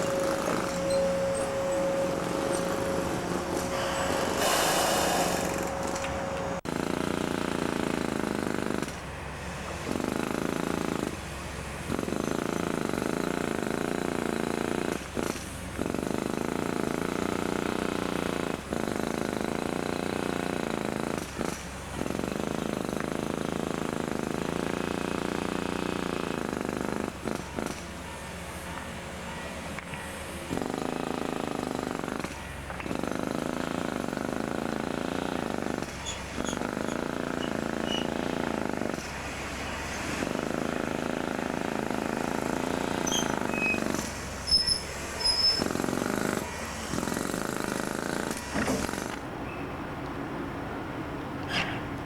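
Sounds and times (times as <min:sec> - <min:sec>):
high steady hum: 0:00.0 - 0:06.7
train mechanical rumble: 0:00.0 - 0:52.0.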